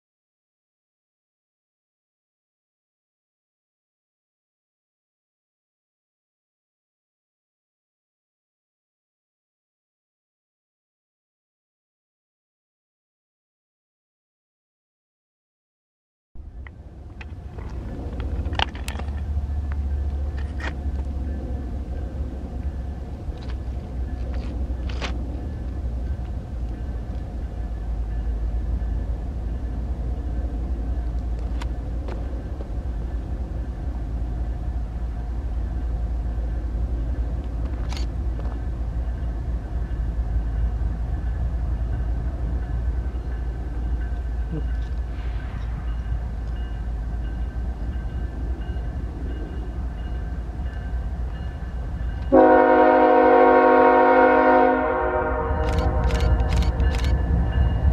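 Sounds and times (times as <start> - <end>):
freight train rumbling by: 16.4 - 57.9.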